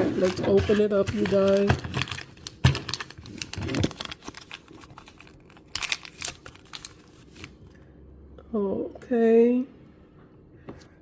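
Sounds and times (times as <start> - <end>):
toy packaging crinkling and tearing: 0.2 - 7.6.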